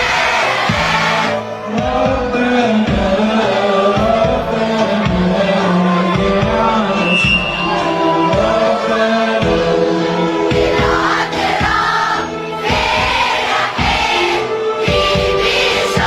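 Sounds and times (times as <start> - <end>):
choir singing a hymn: 0.0 - 16.0
instrumental accompaniment: 0.0 - 16.0
steady low beat: 6.2 - 9.8.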